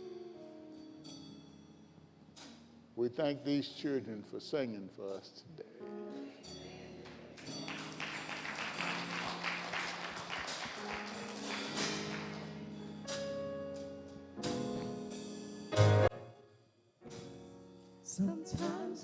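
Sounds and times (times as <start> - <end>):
band playing held chords: 5.8 - 16.3.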